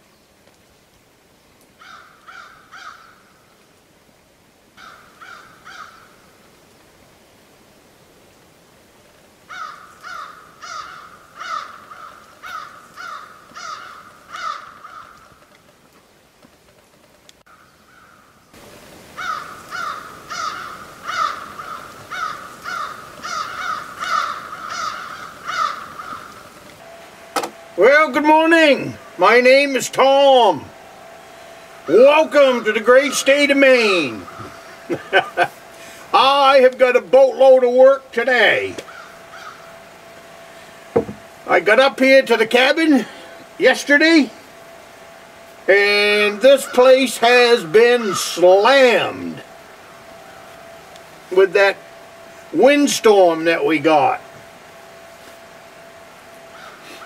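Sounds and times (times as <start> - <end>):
crow cawing: 1.8 - 3.4, 4.8 - 6.2, 9.5 - 15.5, 17.5 - 18.4, 19.1 - 26.6, 34.1 - 36.2, 38.8 - 39.8, 56.5 - 57.0
bird harsh calls: 1.8 - 3.5, 4.8 - 6.3, 9.5 - 15.5, 19.1 - 26.6, 30.5 - 36.2, 38.6 - 41.4, 46.5 - 48.4, 56.4 - 57.0.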